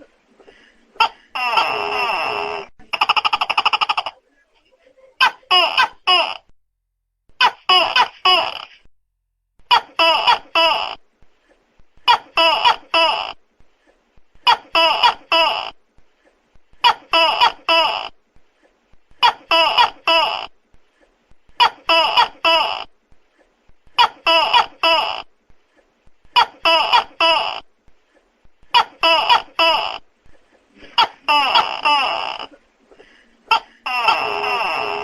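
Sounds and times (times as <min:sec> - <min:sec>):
gecko barking calls: 0:33.5 - 0:35.0.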